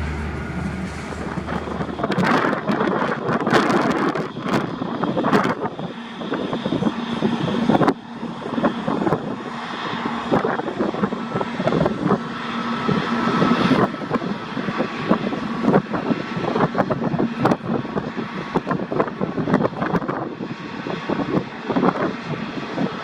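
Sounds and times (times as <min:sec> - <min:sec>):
jet engines whining: 0:00.0 - 0:02.9
wind buffeting microphone: 0:00.0 - 0:23.0.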